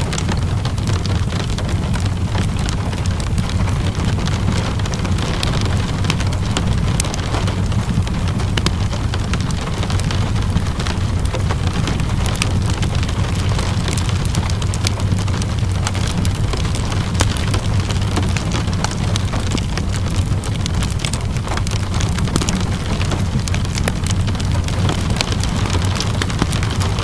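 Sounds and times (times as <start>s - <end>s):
low rumble: 0.0s - 27.0s
steady rainfall: 0.0s - 27.0s
wood fire crackling and popping: 0.0s - 27.0s.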